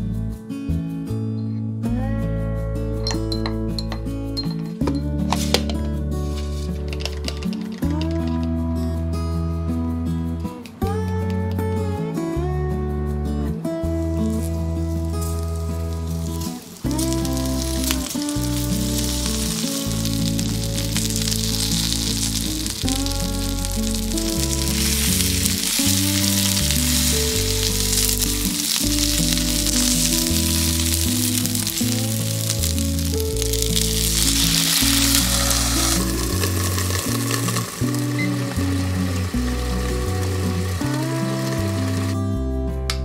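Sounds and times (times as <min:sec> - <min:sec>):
background music with bass line: 0:00.0 - 0:43.0
food sizzling in a frying pan: 0:14.1 - 0:42.2.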